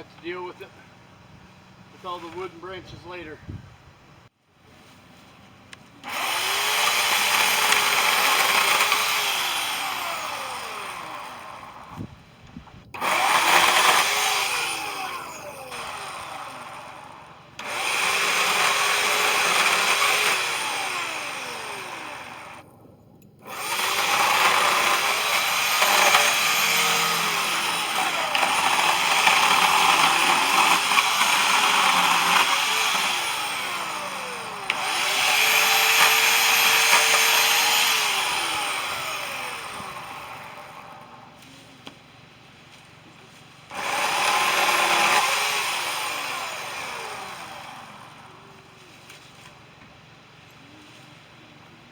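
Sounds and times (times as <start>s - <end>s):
power saw cutting wood: 1.9s - 3.3s, 6.0s - 12.1s, 13.0s - 22.6s, 23.4s - 41.6s, 43.7s - 49.6s.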